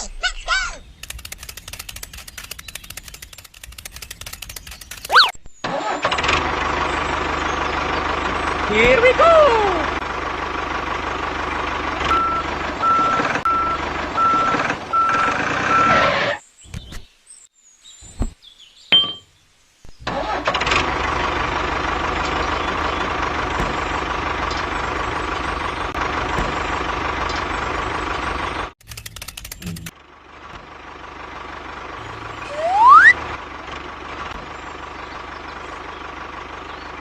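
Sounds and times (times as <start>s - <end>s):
small motor-driven machine running: 1.0s - 5.3s, 21.9s - 30.0s
evenly spaced beeps: 5.0s - 5.3s, 32.5s - 33.2s.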